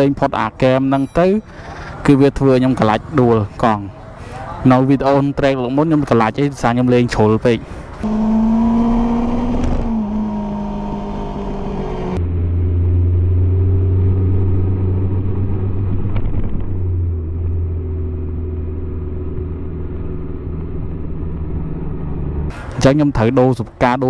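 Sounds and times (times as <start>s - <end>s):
motorcycle engine at speed: 7.9s - 22.8s.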